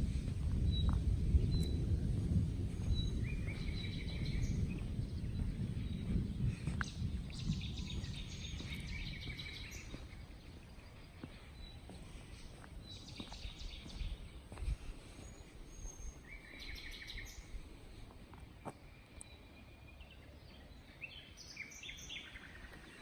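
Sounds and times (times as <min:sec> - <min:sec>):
distant thunder rumble: 0:00.0 - 0:14.4
songbirds singing: 0:00.0 - 0:23.0.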